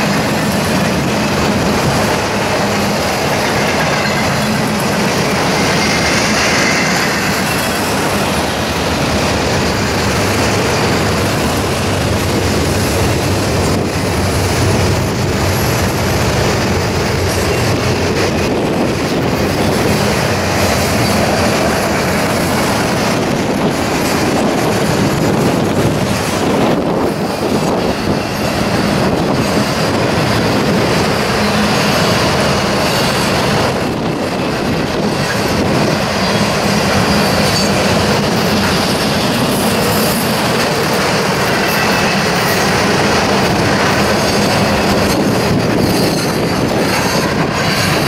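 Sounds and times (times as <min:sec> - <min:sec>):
freight train wheels rumbling: 0:00.0 - 0:48.0
high wheel squeal: 0:02.7 - 0:09.0, 0:20.6 - 0:22.4, 0:35.3 - 0:40.4, 0:43.8 - 0:48.0.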